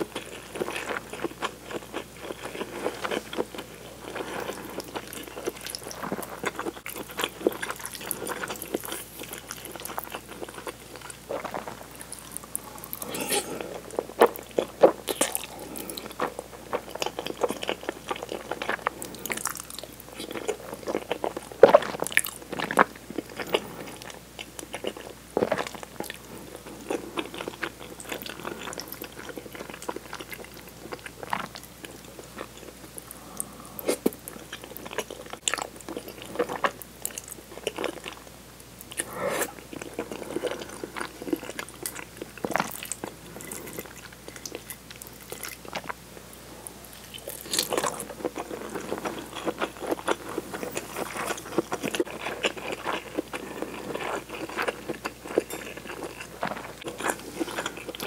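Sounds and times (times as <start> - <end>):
chewing and slurping spaghetti: 0.0 - 38.2, 38.9 - 46.0, 46.9 - 58.0.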